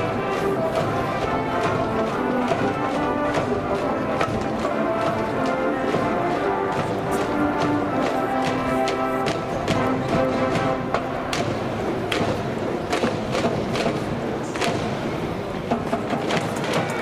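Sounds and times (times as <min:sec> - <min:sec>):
brass band playing: 0:00.0 - 0:12.4
drum hits: 0:00.0 - 0:17.0.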